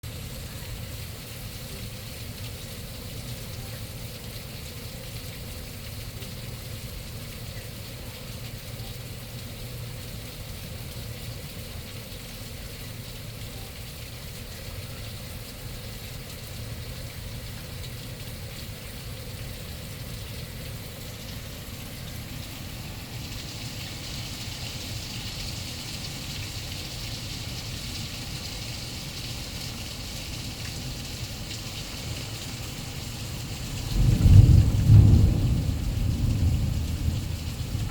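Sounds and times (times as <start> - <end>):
rain: 0.0 - 37.9
running floodwater: 0.0 - 37.9.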